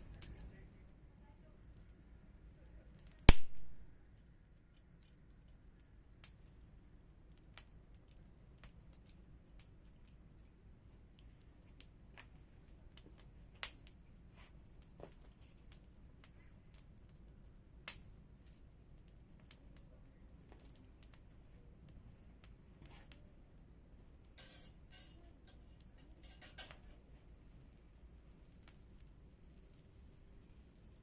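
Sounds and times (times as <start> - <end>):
firewood crackling: 0.0 - 31.0
loud pop of burning wood: 3.2 - 4.0.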